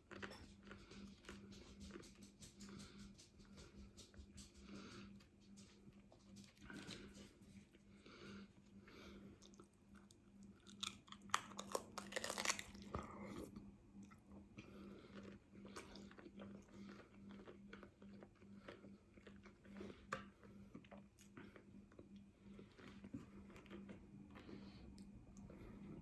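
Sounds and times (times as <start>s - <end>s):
faint steady hum: 0.0s - 26.0s
crunchy taco chewing: 9.2s - 25.7s.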